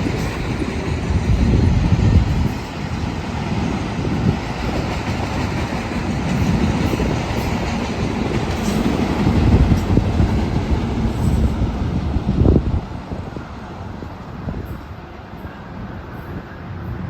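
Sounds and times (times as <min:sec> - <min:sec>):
train wheels clattering: 0:00.0 - 0:12.1
train rumbling past: 0:00.0 - 0:17.0.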